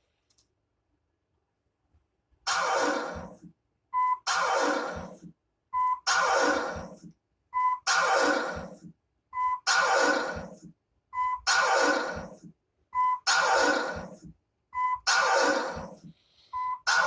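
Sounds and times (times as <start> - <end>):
short beep tone: 4.0 - 4.2, 5.8 - 6.0, 7.6 - 7.8, 9.4 - 9.6, 11.2 - 11.5, 13.0 - 13.3, 14.8 - 15.1, 16.6 - 16.9.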